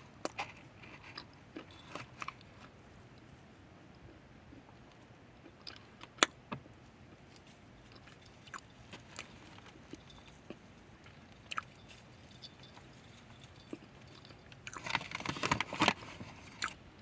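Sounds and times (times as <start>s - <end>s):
chewing crunches: 5.4s - 16.8s.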